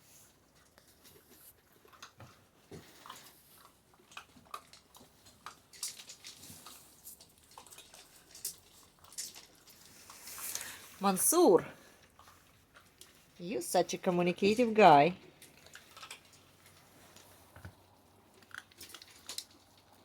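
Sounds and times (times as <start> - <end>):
puppies moving about: 0.0 - 13.5
puppies chewing: 0.0 - 20.0.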